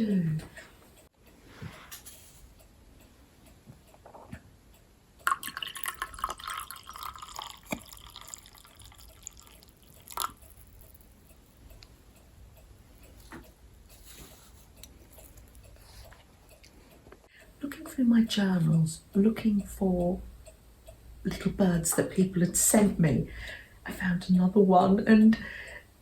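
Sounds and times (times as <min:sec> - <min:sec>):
tea pouring into a cup: 0:05.3 - 0:11.0.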